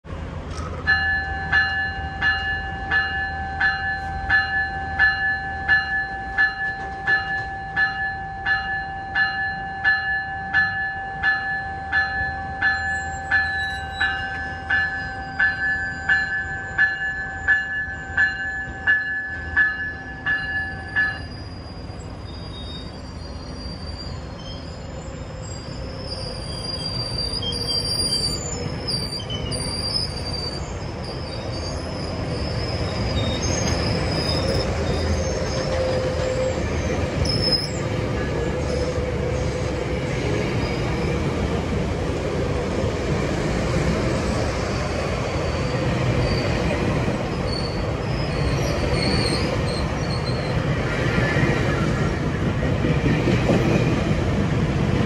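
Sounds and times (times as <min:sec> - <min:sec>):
train coaches rumbling past: 0:00.0 - 0:55.0
train bell ringing: 0:00.8 - 0:39.8
high-pitched wheel squeal: 0:12.8 - 0:16.9, 0:20.6 - 0:39.8, 0:44.7 - 0:50.6.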